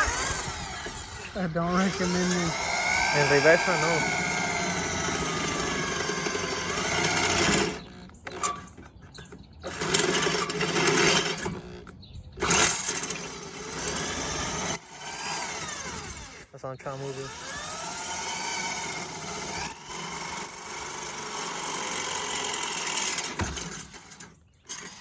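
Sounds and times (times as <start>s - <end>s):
power drill running: 0.0s - 7.6s, 13.6s - 16.3s, 17.1s - 23.4s.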